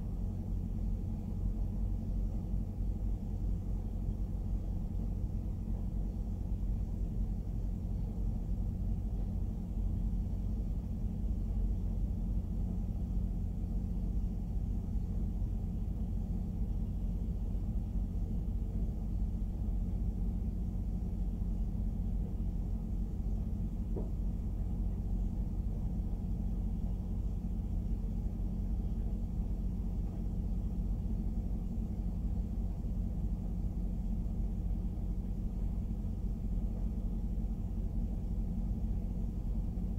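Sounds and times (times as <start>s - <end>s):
freight train wheels rumbling: 15.6s - 39.9s.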